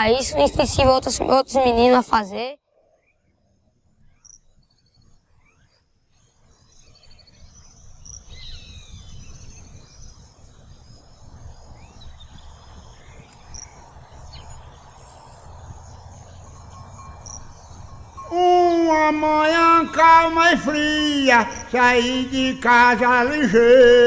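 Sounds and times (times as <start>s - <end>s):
insect chorus: 4.2s - 24.0s
bird chirps and calls: 6.8s - 24.0s.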